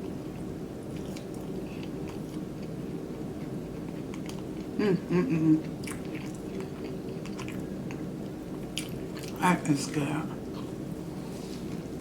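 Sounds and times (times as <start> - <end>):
person chewing food: 0.0 - 9.4
person humming mm: 4.8 - 5.7.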